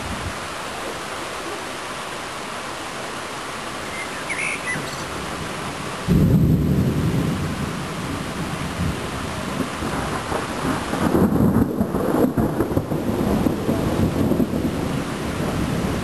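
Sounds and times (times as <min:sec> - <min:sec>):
rain hissing: 0:00.0 - 0:16.0
thunder clap and rumble: 0:06.0 - 0:16.0.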